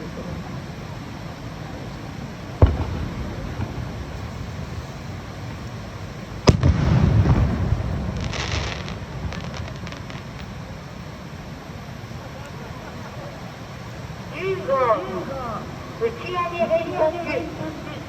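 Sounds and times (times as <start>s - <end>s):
crackling sparks: 1.8s - 11.4s
echoing rumble: 2.3s - 11.0s
fireworks shells bursting: 2.6s - 10.6s.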